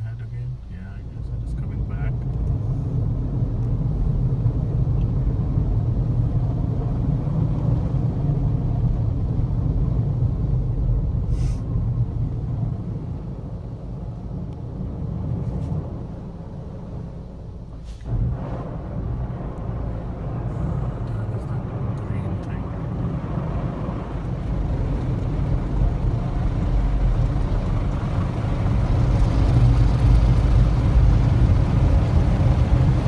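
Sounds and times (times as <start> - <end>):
car wash gantry rumbling: 0.0 - 33.0
short hiss: 11.3 - 11.7, 17.8 - 18.1.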